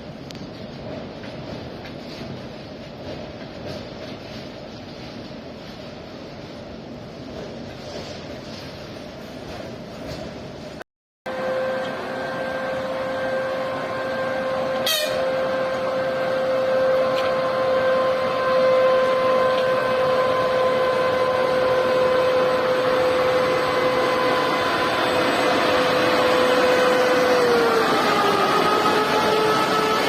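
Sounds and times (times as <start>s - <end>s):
electric locomotive hum: 0.0s - 30.0s
machinery noise: 11.3s - 30.0s.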